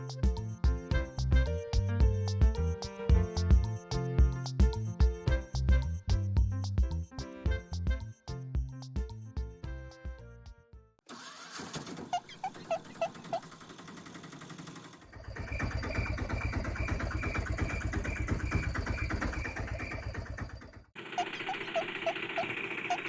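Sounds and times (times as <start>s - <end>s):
toy vehicle engine chugging: 11.1s - 23.0s
rattle with chirps: 12.3s - 23.0s.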